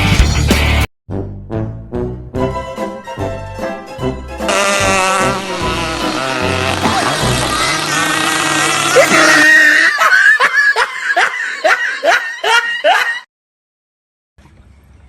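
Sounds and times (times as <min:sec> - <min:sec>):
person laughing: 0:04.5 - 0:13.3.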